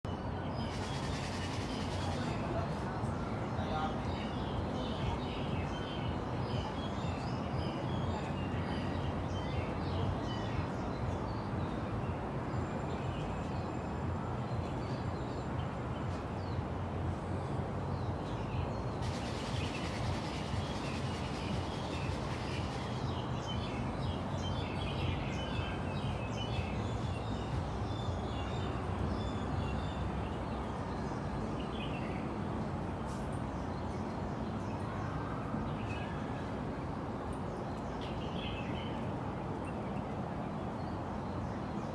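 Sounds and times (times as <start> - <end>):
small birds chirping: 17.9 - 32.3.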